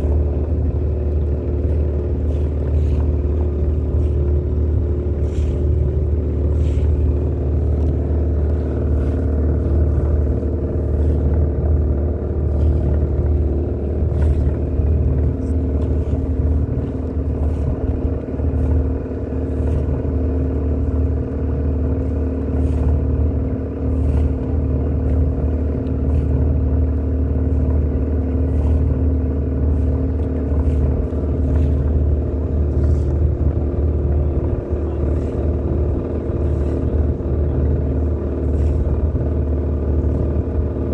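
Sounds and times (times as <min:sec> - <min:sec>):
boat engine humming: 0:00.0 - 0:40.9.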